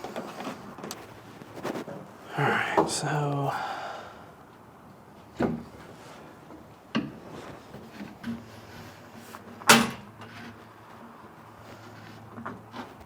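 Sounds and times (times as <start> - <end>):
knocks and clunks of tools: 9.6 - 10.5.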